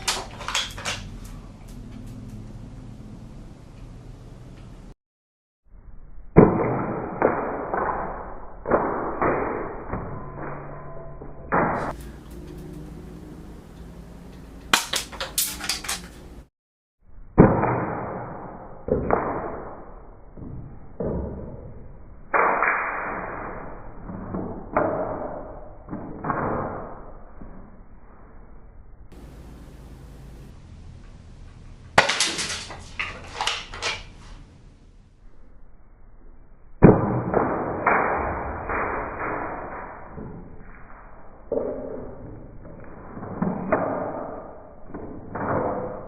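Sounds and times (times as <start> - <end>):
toy gun shots: 14.7 - 16.0.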